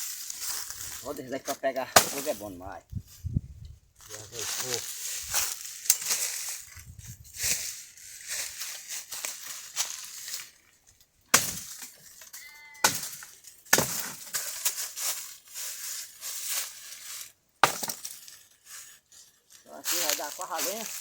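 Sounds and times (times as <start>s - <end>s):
dry twigs rustling and crackling: 0.0s - 21.0s
firewood cracking: 9.2s - 14.8s.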